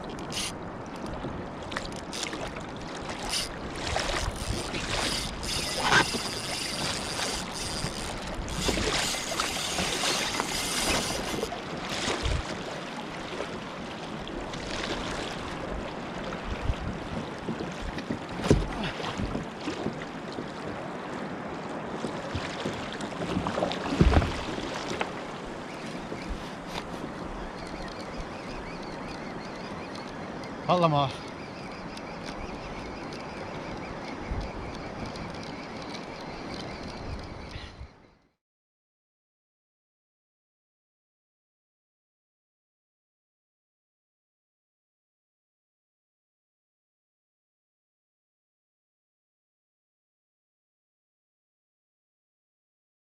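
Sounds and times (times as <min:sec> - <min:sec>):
water splashing around kayak: 0:00.0 - 0:37.4
wind on microphone: 0:03.2 - 0:12.7, 0:14.9 - 0:20.9.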